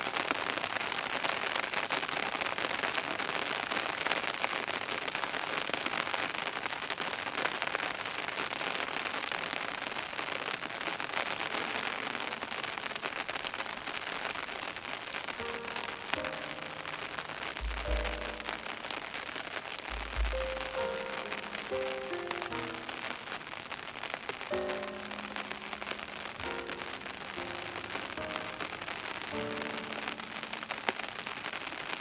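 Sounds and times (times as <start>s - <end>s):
rain pattering: 0.0s - 32.0s
soft music with deep bass: 15.4s - 18.8s, 19.9s - 23.0s.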